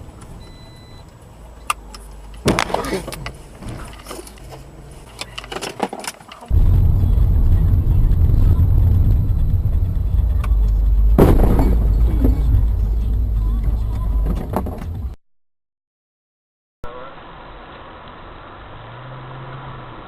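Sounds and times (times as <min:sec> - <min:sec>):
car road and engine rumble: 0:00.0 - 0:15.2, 0:16.9 - 0:20.0
sharp bang: 0:06.5 - 0:13.1.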